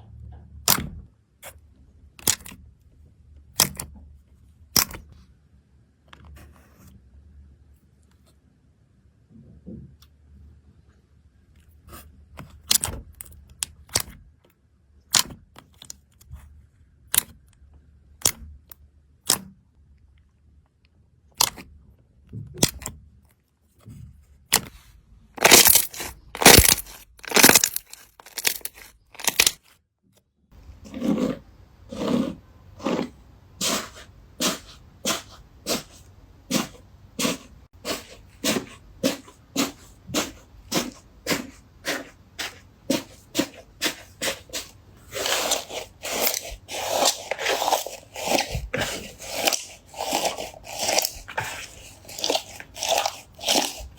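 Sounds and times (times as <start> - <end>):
crunchy slime crackling: 25.4 - 29.6, 36.5 - 53.9.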